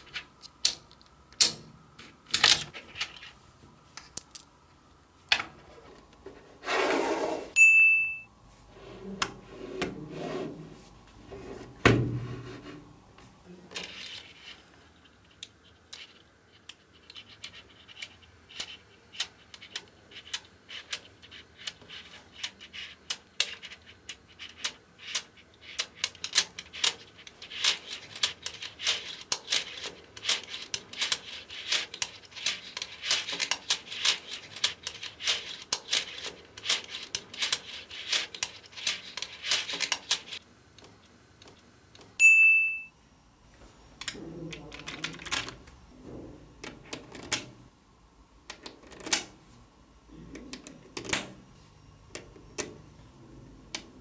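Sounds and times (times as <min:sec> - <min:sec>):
low rubbing sound: 0:05.7 - 0:07.6, 0:08.5 - 0:13.0
short high ring: 0:07.6 - 0:08.3.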